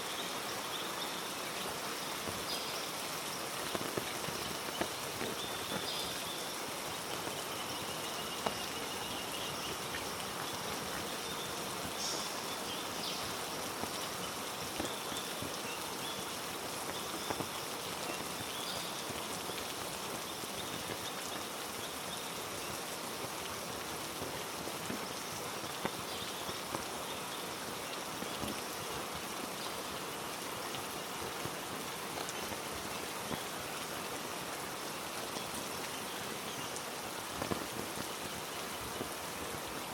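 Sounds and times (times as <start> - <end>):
heavy rain on foliage: 0.0 - 39.9
raindrops ticking: 1.7 - 21.8, 35.2 - 39.5.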